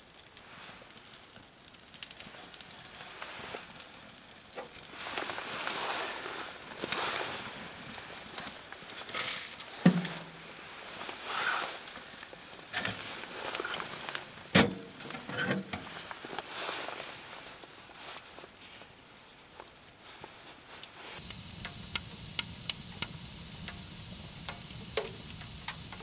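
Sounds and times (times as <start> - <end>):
fire crackling in wood stove: 0.0 - 26.0.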